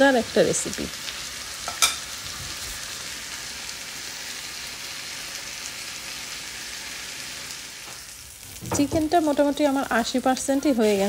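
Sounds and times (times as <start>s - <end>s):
chicken sizzling in a frying pan: 0.0s - 11.0s.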